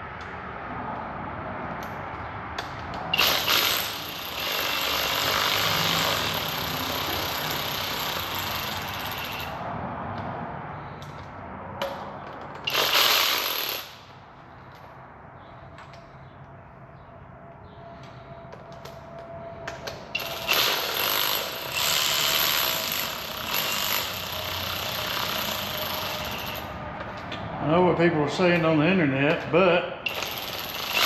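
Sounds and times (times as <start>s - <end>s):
cordless power tool whining: 20.2s - 26.7s.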